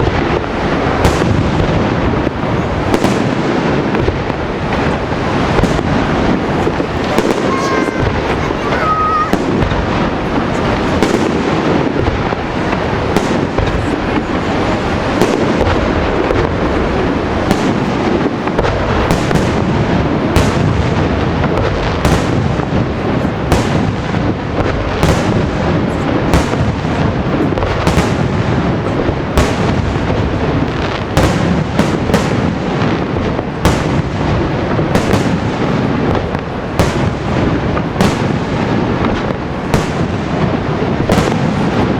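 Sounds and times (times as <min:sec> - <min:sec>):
fireworks rumble and crackle: 0:00.0 - 0:41.9
sharp firework bangs: 0:00.0 - 0:41.9.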